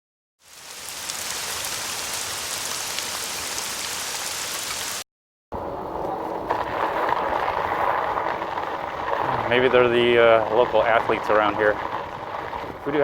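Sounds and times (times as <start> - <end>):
rain hiss: 0.4 - 5.0, 6.5 - 13.0.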